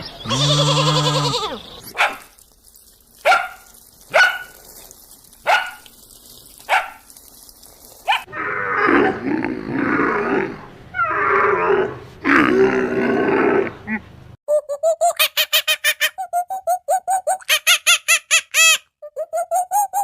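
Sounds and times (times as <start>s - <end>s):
dog barking: 1.9s - 2.3s, 3.2s - 4.6s, 5.4s - 5.8s, 6.7s - 7.0s, 8.0s - 9.2s
animal grunting: 8.3s - 14.2s.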